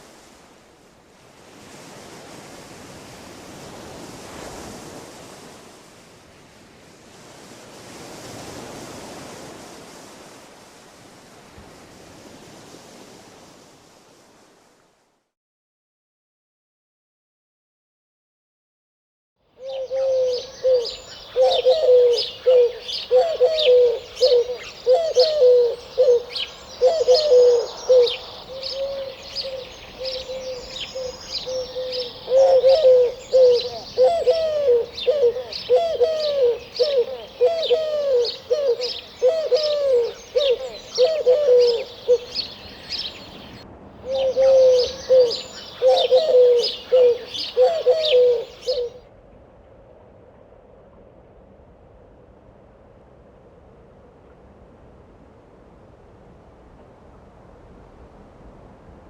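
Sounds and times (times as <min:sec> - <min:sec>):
bird cooing: 0:19.6 - 0:43.3, 0:44.0 - 0:49.1.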